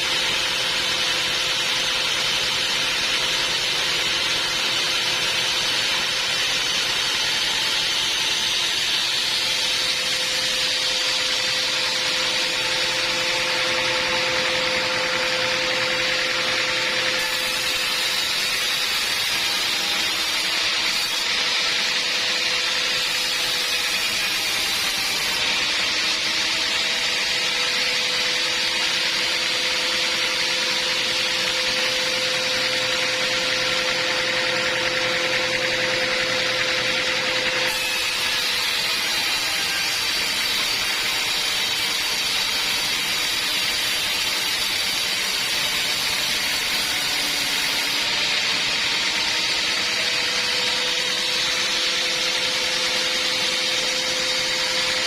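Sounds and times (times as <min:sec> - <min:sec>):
saw whine: 0:00.0 - 0:55.0.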